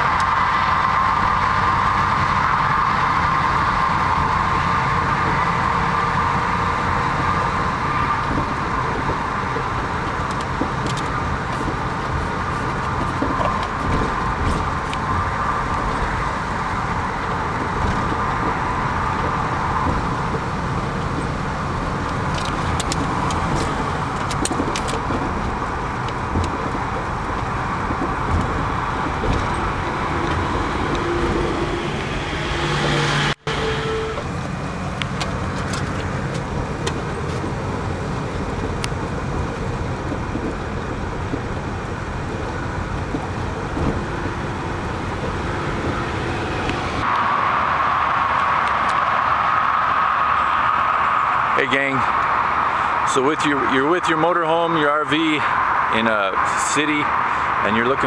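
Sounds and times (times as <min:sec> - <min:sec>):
vehicle engine and tyre noise: 0:00.0 - 0:58.0.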